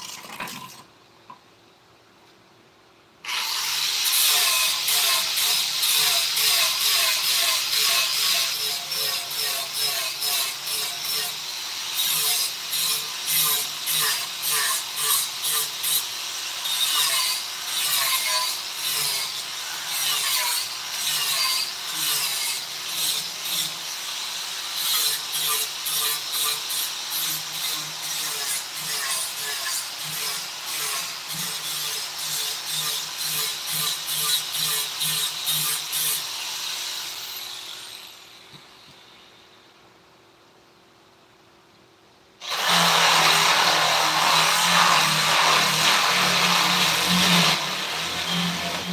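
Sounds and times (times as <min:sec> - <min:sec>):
hand tool rasping wood: 0:42.4 - 0:48.9.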